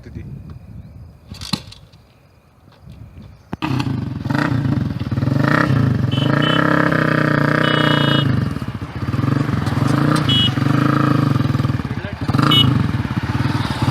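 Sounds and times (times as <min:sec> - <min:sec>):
motorcycle engine revving: 0:03.6 - 0:13.9.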